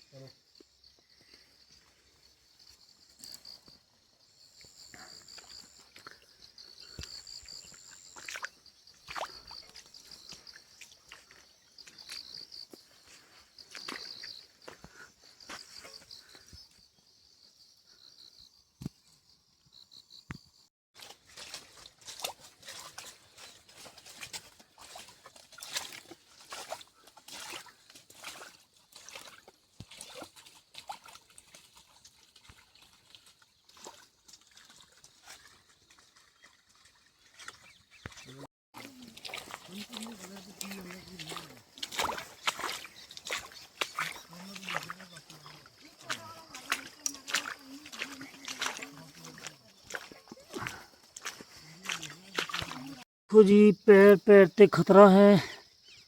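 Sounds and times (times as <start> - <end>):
footsteps crunching on trail: 6.8 - 16.6, 21.0 - 36.6, 37.5 - 53.0.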